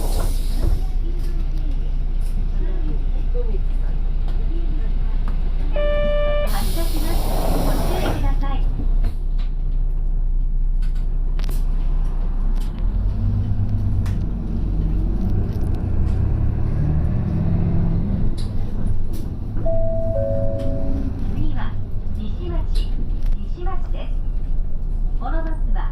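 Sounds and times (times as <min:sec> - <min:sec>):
bus engine and road rumble: 0:00.0 - 0:25.9
two-note chime: 0:19.7 - 0:21.1.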